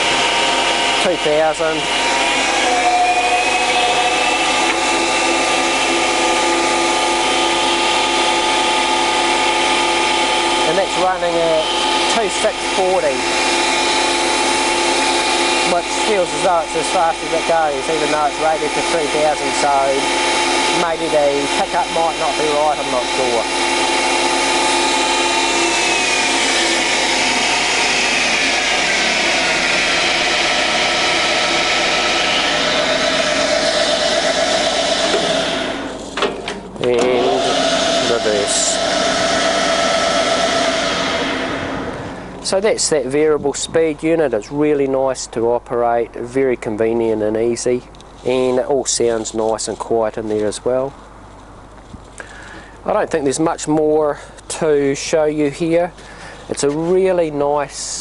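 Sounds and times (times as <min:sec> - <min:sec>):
lathe running: 0:00.0 - 0:44.8.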